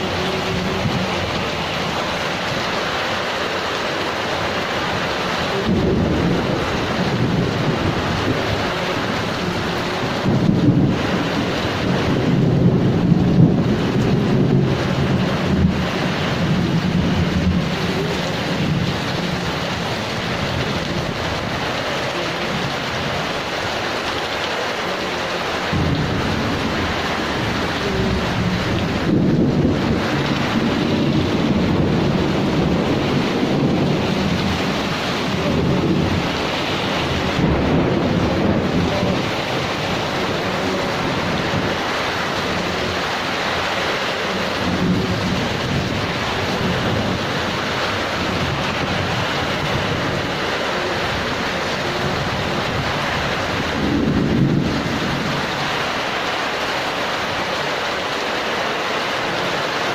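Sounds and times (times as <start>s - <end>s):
heavy rain hissing: 0.0s - 59.9s
thunder rolling: 5.4s - 21.8s, 25.6s - 43.4s, 44.3s - 55.6s.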